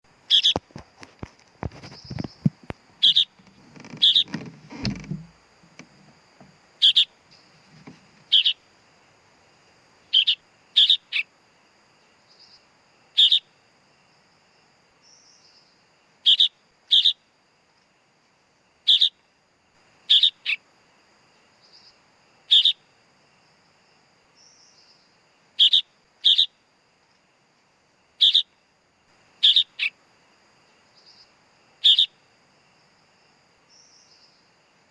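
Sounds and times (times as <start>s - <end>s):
bird chick calling: 0.3s - 0.7s, 1.8s - 5.3s, 6.8s - 7.1s, 8.2s - 8.6s, 10.1s - 11.2s, 20.1s - 20.6s, 29.4s - 29.9s
rustling: 0.6s - 6.2s.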